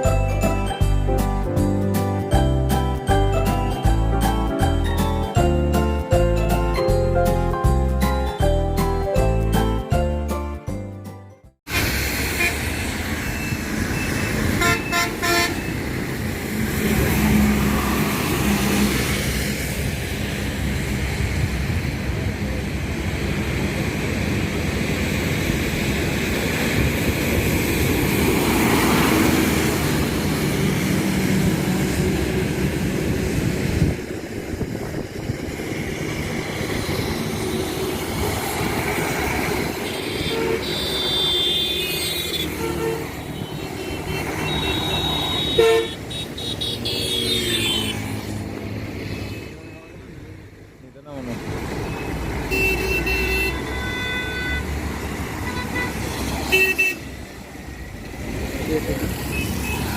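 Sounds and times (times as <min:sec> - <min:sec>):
vehicles passing: 0:00.0 - 0:59.9
car horns tooting: 0:11.7 - 0:16.0, 0:39.4 - 0:48.2, 0:51.8 - 0:57.2, 0:59.2 - 0:59.9.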